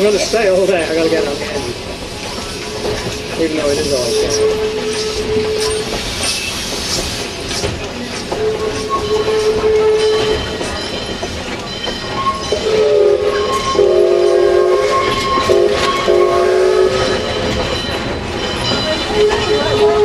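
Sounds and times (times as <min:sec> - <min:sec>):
train running noise: 0:00.0 - 0:20.0
steam locomotive whistle chord: 0:12.2 - 0:17.3.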